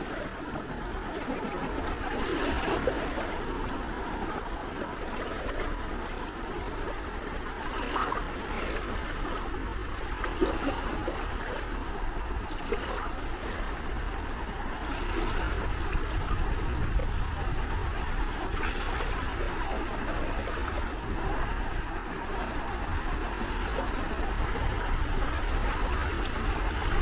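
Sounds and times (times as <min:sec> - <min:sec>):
sea waves lapping at shore: 0:00.0 - 0:27.0.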